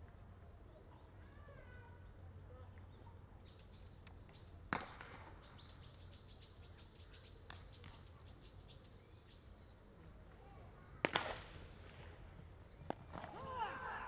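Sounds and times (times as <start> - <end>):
bird chirping: 2.8 - 10.1
sharp crack: 4.7 - 5.4, 11.0 - 12.2.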